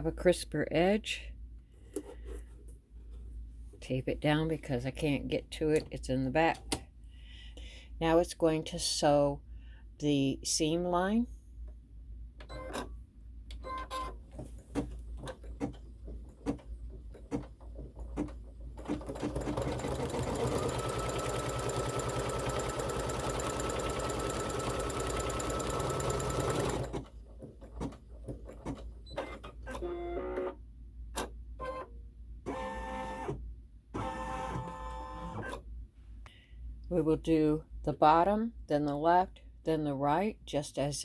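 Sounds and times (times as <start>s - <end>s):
embroidery machine stitching: 17.2s - 28.9s.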